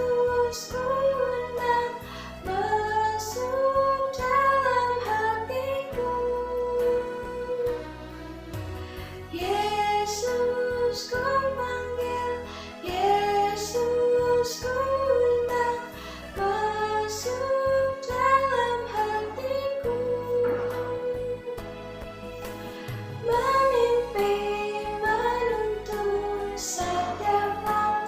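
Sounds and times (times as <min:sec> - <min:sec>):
woman singing: 0:00.0 - 0:08.2, 0:09.3 - 0:21.9, 0:23.2 - 0:28.0
instrumental accompaniment: 0:14.7 - 0:28.0.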